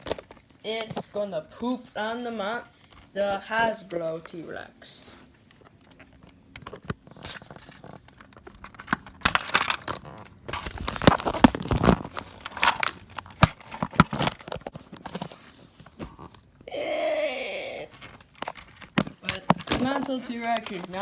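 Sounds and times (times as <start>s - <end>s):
material crinkling and tearing: 0.0s - 1.1s, 5.2s - 16.7s, 17.6s - 21.0s.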